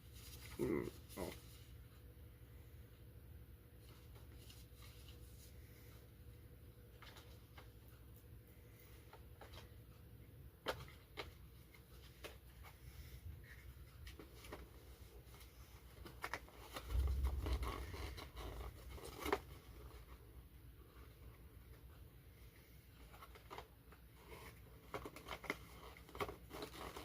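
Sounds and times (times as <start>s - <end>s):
low rumbling bump: 16.9s - 19.3s.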